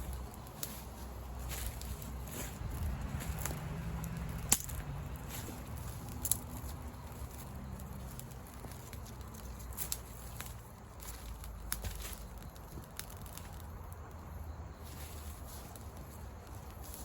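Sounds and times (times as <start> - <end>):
steady low rumble: 0.0 - 17.0
sharp clicks and snaps: 3.4 - 4.9.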